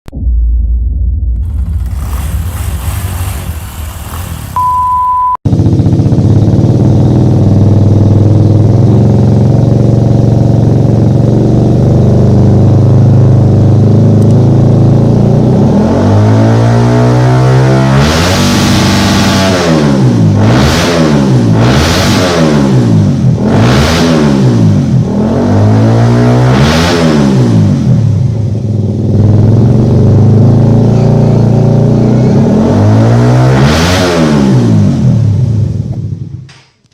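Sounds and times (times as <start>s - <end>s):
motorcycle engine idling and revving: 1.4s - 36.9s.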